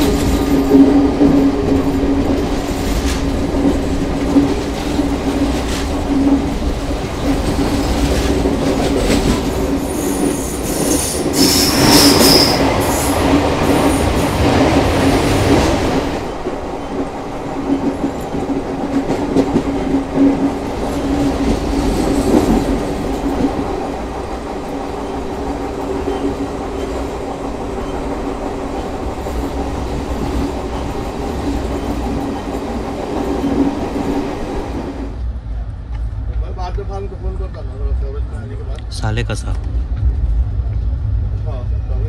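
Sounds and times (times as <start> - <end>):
train rumble and hum: 0.0 - 42.0.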